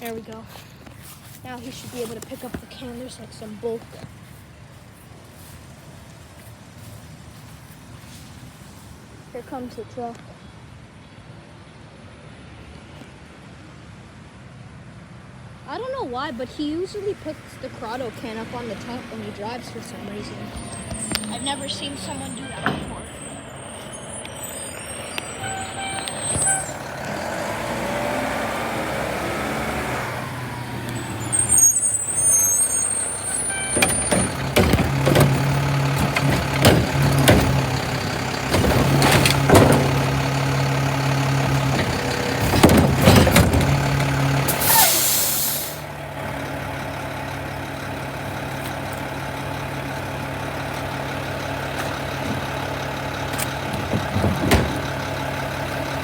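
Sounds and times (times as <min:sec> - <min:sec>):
diesel engine running: 0:00.0 - 0:09.9, 0:15.7 - 0:56.0
air brakes hissing: 0:20.5 - 0:27.0, 0:31.0 - 0:45.9
trash can clanks and bangs: 0:33.2 - 0:45.0, 0:51.5 - 0:55.7.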